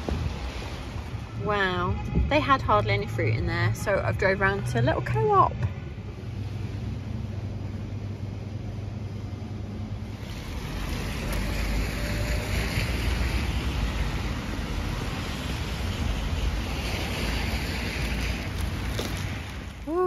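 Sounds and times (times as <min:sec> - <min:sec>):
heavy rain on pavement: 0:10.2 - 0:20.0.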